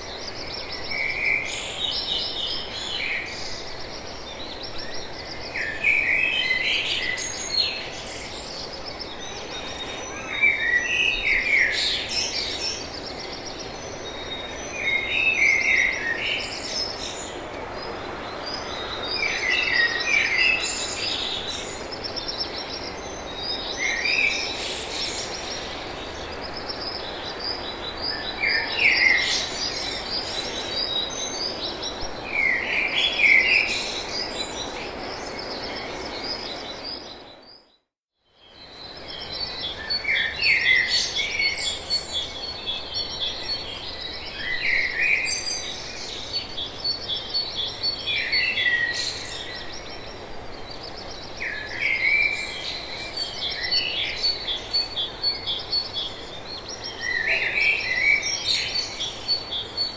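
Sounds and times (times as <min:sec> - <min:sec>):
background hiss: 0:00.0 - 0:37.5
songbirds singing and chirping: 0:00.0 - 0:59.9.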